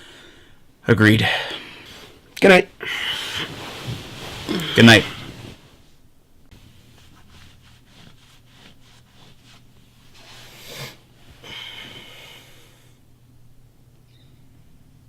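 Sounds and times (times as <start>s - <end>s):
bedding rustling: 1.2s - 12.6s
man snorting: 4.4s - 5.4s
noisy nasal breath: 10.2s - 13.0s.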